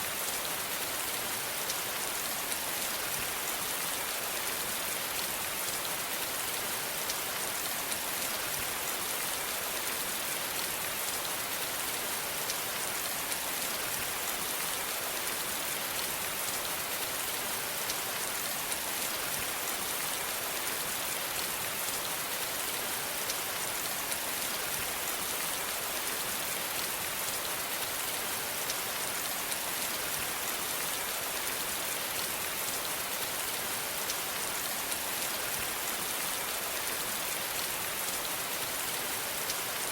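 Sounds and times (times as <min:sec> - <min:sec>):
rain falling on surface: 0:00.0 - 0:39.9.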